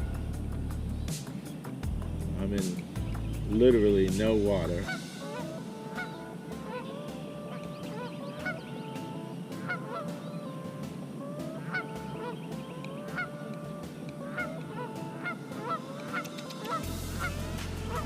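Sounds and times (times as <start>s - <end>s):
geese honking: 3.4s - 18.0s.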